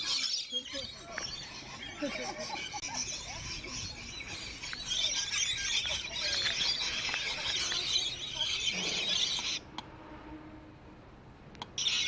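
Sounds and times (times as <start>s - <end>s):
lorikeets screeching and chattering: 0.0s - 10.4s, 11.7s - 12.0s.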